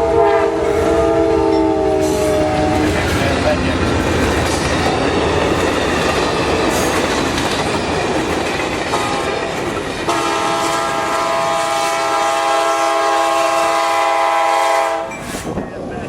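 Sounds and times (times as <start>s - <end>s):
train air horn chord: 0.0s - 3.0s, 8.9s - 9.3s, 10.1s - 15.1s
train rail noise: 0.0s - 16.0s.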